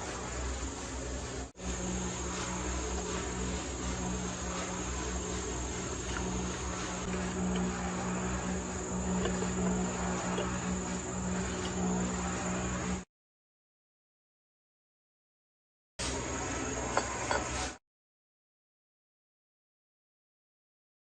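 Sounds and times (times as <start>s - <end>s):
low hum: 0.0s - 13.1s
insect chirring: 1.6s - 13.0s.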